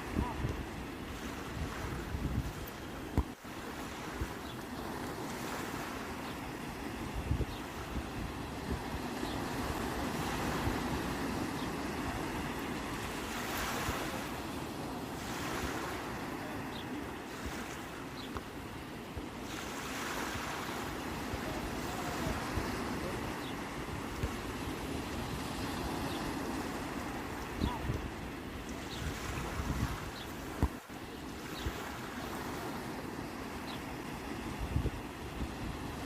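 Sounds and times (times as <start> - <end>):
sea waves washing onto shore: 0.0 - 36.0
wind buffeting microphone: 1.4 - 2.8.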